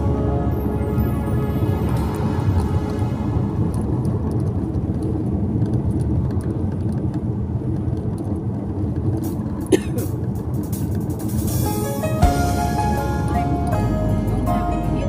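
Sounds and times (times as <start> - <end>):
car interior road rumble: 0.0 - 15.0.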